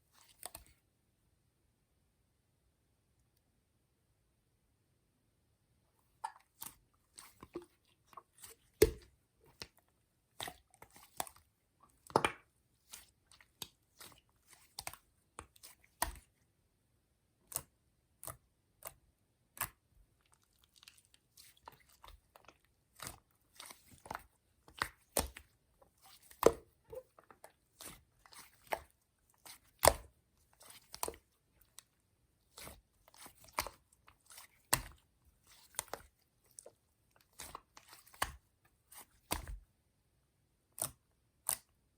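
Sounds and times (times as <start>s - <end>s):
slime squished by hand: 6.2s - 16.4s, 20.4s - 31.9s, 32.5s - 39.7s.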